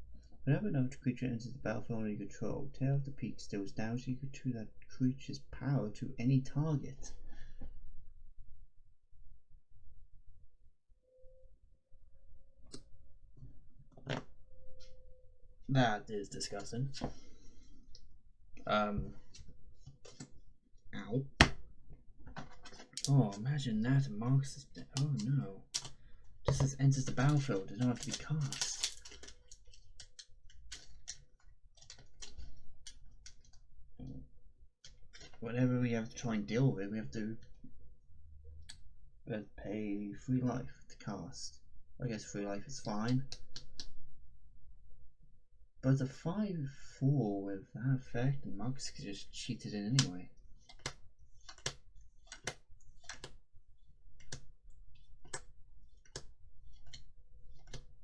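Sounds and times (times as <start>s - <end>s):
faint steady tone: 10.4s - 19.2s
trading cards clicking and tapping: 24.8s - 29.4s, 50.7s - 53.4s
sharp card clicks: 25.0s - 26.0s, 27.1s - 29.1s.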